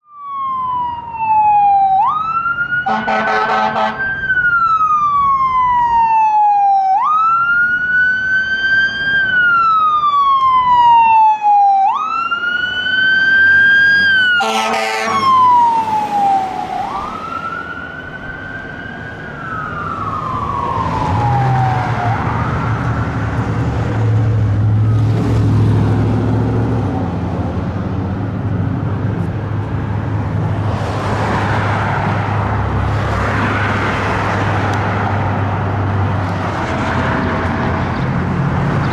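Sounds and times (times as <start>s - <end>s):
fire engine siren wailing: 0.0s - 38.9s
air horn blasts: 2.9s - 4.1s, 14.4s - 15.4s
truck engine rumble: 12.3s - 38.9s.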